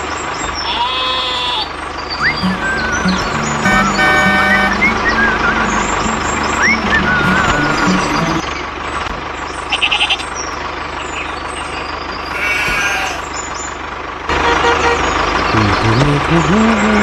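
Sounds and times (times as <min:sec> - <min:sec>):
engine-like drone: 0:00.0 - 0:17.0
brief pitched tone: 0:02.2 - 0:08.5.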